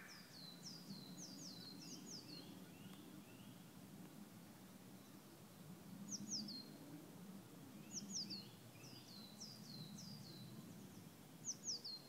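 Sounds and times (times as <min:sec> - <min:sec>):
songbird calling: 0:00.0 - 0:03.7, 0:06.1 - 0:06.8, 0:07.7 - 0:12.0.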